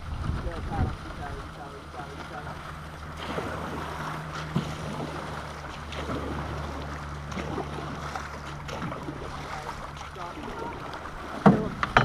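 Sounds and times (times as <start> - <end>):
wind on microphone: 0.0 - 5.3
low steady hum: 0.0 - 12.0
river water rushing: 0.0 - 12.0
knock against canoe hull: 11.4 - 12.0.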